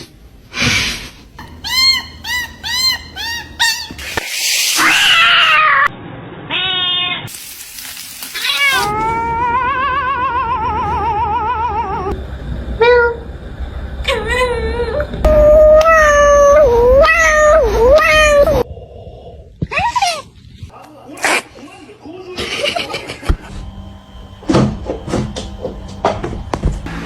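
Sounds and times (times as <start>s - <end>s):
cat yowling: 1.4s - 5.9s, 8.4s - 12.1s, 15.3s - 18.6s
cat meowing: 1.5s - 5.9s, 6.5s - 7.3s.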